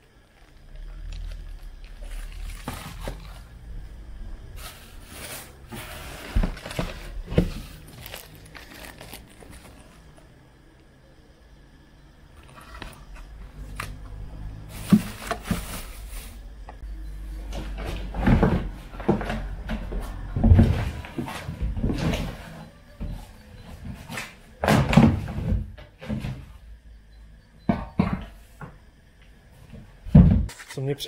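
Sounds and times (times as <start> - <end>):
packaging rustling: 0.2 - 3.6, 4.6 - 10.2
knocks and thumps: 27.6 - 28.8, 29.7 - 30.5.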